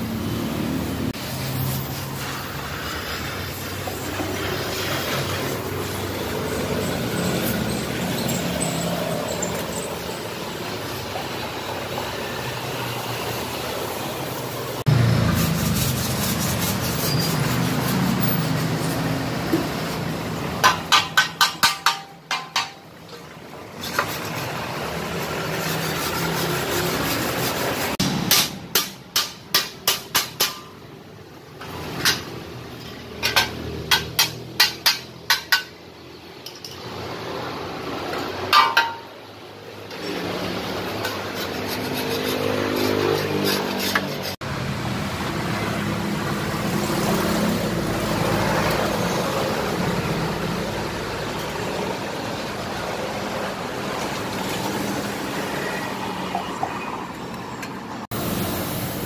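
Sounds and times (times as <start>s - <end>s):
hammer striking metal muffler: 20.6s - 22.9s, 28.0s - 30.8s, 33.2s - 35.8s, 38.4s - 39.2s.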